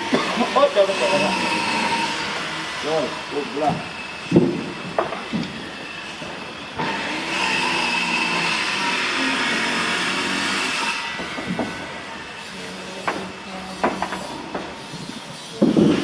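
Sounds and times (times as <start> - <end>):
power tool on wood: 0.0 - 16.0
knocks: 4.3 - 5.6, 11.2 - 11.8, 13.0 - 14.8.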